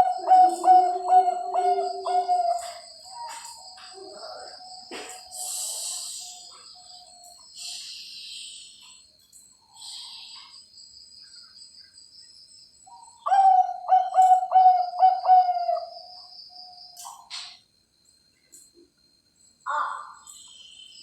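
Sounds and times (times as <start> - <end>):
dove cooing: 0.0 - 6.6, 13.2 - 15.9.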